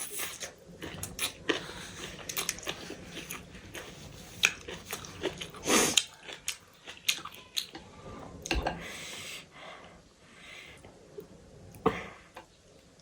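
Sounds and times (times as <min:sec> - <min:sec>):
person chewing food: 0:00.0 - 0:07.8.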